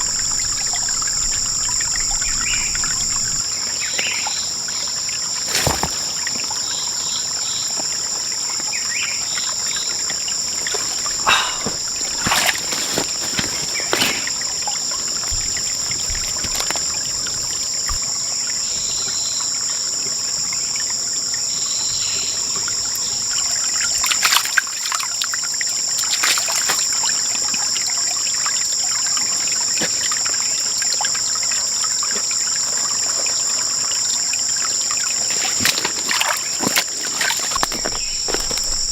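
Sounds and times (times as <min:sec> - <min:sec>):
insect chorus buzzing: 0:00.0 - 0:38.9
rustles: 0:05.4 - 0:06.9, 0:09.9 - 0:18.2, 0:35.1 - 0:38.9.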